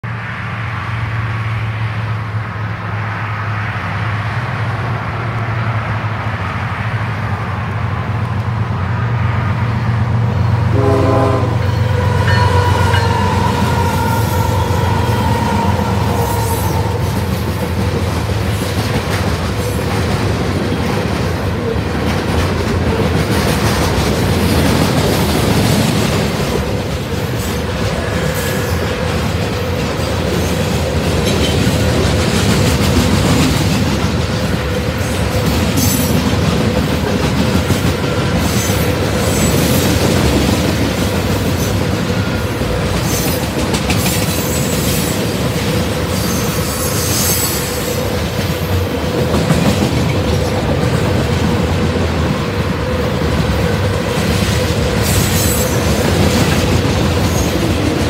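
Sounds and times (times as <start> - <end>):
diesel locomotive engines rumbling: 0.0 - 58.0
train horn: 10.6 - 17.8
wheels clacking over rail joints: 11.8 - 58.0.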